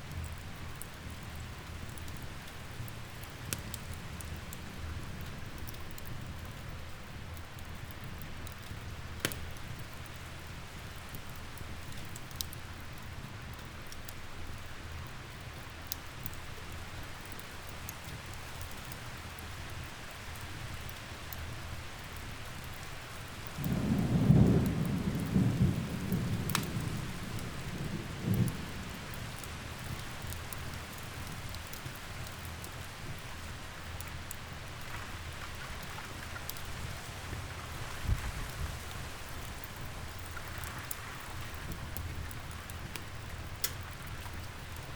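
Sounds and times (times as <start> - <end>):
log fire crackling: 0.0 - 44.9
steady rain falling: 0.0 - 44.9
roll of thunder: 23.6 - 29.2.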